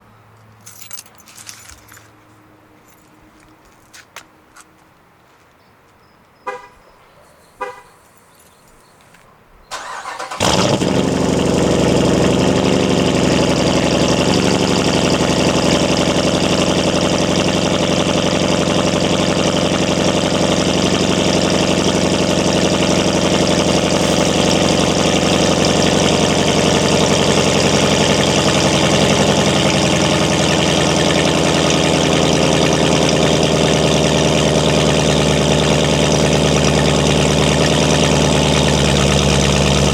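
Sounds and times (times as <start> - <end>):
engine cranking: 9.7 - 15.0, 19.4 - 39.9
car engine idling loudly: 9.8 - 39.9.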